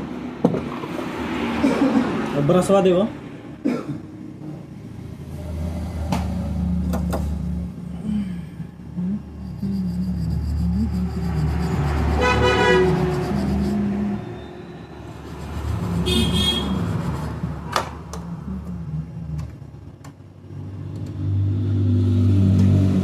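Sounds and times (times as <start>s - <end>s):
road traffic: 0.0s - 23.0s
vehicle horn honks: 12.2s - 13.1s, 16.0s - 17.0s.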